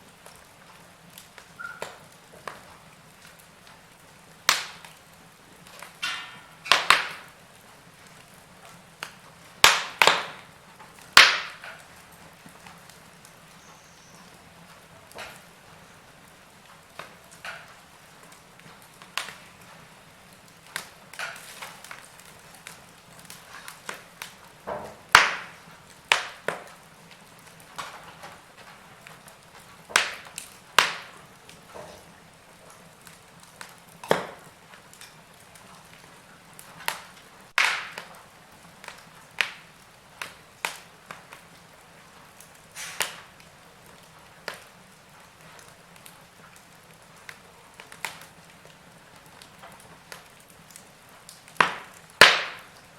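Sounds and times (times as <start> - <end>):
faint steady hiss: 0.0 - 52.9
wood fire crackling: 0.0 - 52.9.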